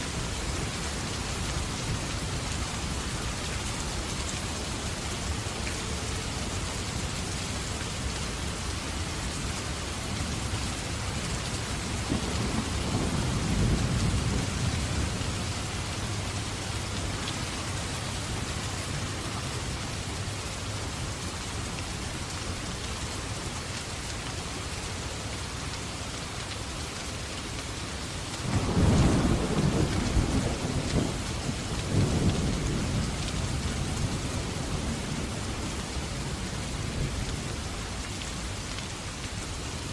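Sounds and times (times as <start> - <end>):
rain falling: 0.0 - 39.9
thunder rumbling: 12.0 - 16.3, 28.4 - 37.3.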